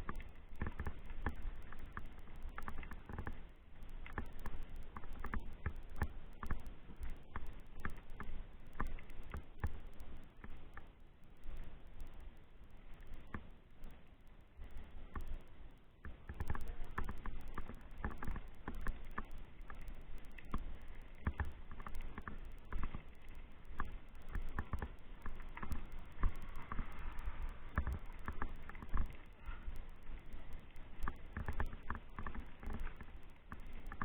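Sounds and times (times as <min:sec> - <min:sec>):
low rumble: 0:16.5 - 0:34.0.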